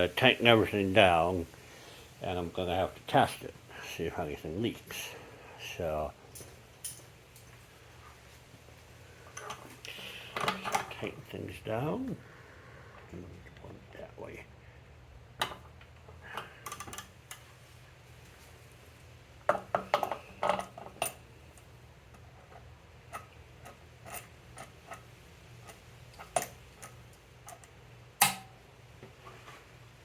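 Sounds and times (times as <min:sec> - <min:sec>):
low steady hum: 0:00.0 - 0:30.0
hand tools clicking and knocking: 0:09.3 - 0:11.0, 0:15.4 - 0:17.4, 0:19.5 - 0:21.2, 0:22.1 - 0:28.5.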